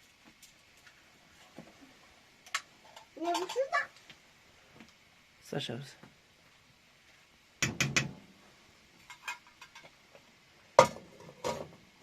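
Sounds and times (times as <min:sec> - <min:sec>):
loud sharp knock: 0:07.6 - 0:08.2.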